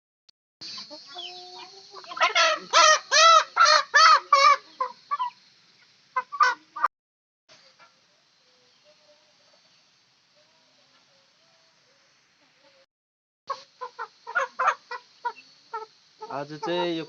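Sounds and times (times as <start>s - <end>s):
chicken squawking: 2.0s - 5.4s, 6.2s - 6.9s, 13.5s - 17.0s.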